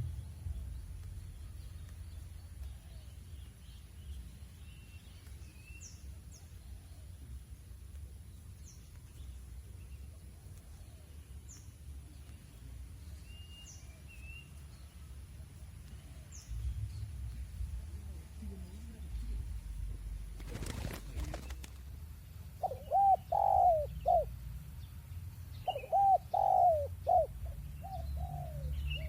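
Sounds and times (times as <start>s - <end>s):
low rumble: 0.0s - 4.4s, 14.8s - 21.2s
small birds chirping: 0.0s - 29.0s.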